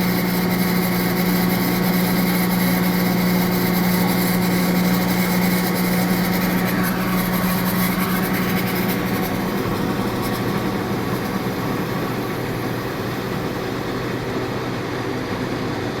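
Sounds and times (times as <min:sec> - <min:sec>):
machine running: 0:00.0 - 0:15.1
strong low hum: 0:03.8 - 0:14.3.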